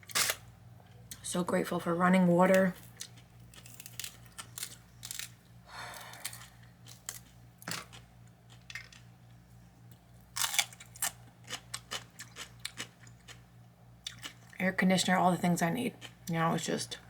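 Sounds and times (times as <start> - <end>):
chewing crunchy bread roll: 2.8 - 14.6, 15.9 - 16.3.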